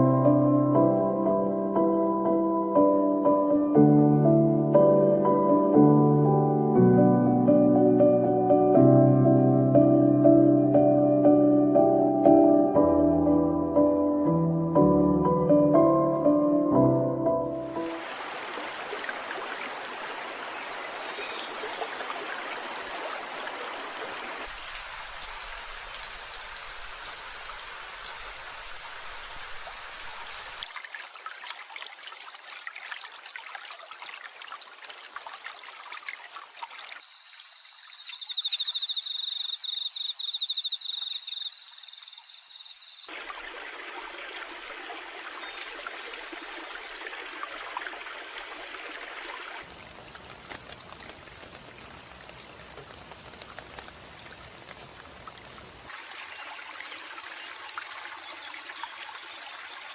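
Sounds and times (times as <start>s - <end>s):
splashing rain or water: 17.5s - 59.9s
high rapid trilling calls: 37.0s - 43.1s.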